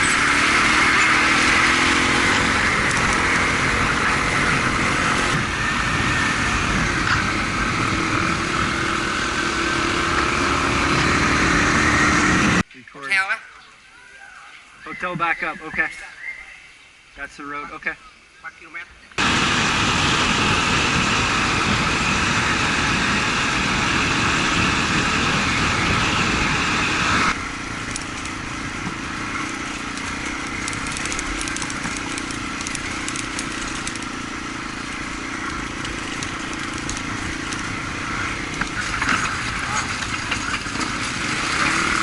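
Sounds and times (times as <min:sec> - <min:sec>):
motorbike engine running: 0:00.0 - 0:12.6, 0:19.2 - 0:42.0
wind rush: 0:19.2 - 0:38.8
crackling: 0:27.7 - 0:41.2.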